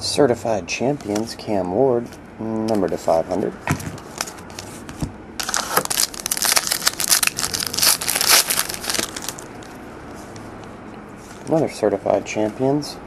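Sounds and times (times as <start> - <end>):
foil wrapper crinkling and tearing: 5.4 - 9.5.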